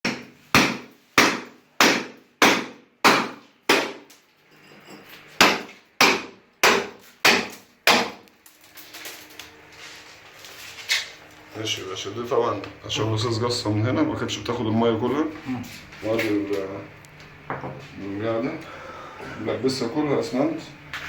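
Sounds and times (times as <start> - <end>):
hammer striking cement: 0.0 - 4.1, 5.4 - 8.2.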